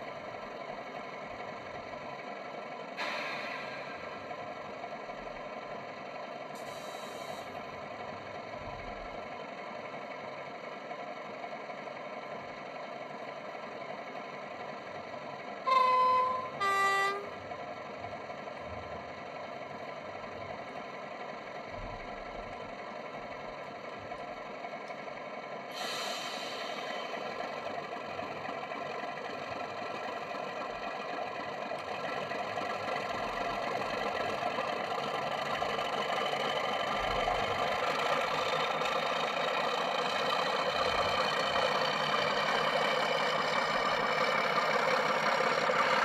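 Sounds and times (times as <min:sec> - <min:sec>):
diesel engine idling: 0:00.0 - 0:46.0
short hiss: 0:03.0 - 0:04.0
two-tone horn: 0:15.7 - 0:17.4.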